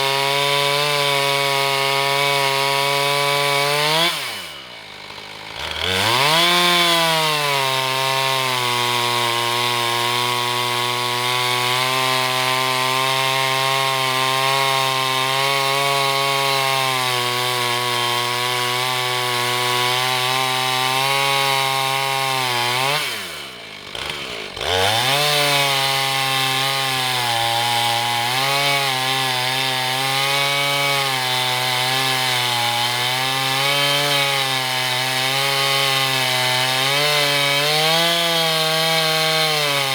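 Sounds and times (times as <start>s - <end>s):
chainsaw cutting through log: 0.0s - 39.9s.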